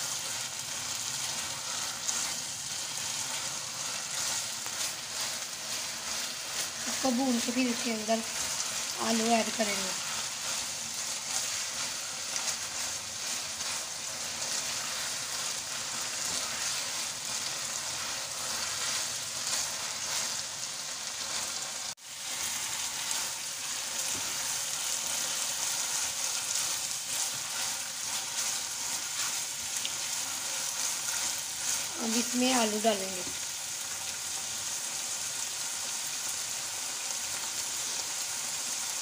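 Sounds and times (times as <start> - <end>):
meat sizzling in hot oil: 0.0 - 39.0
spatula stirring in a wok: 0.0 - 39.0.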